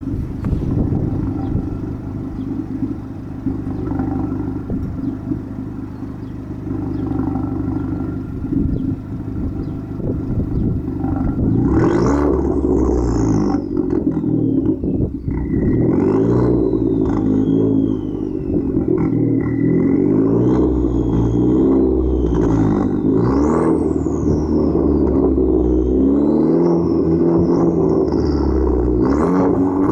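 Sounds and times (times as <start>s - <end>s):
car engine idling and revving: 0.0s - 29.9s
turbo whistle: 14.2s - 27.9s.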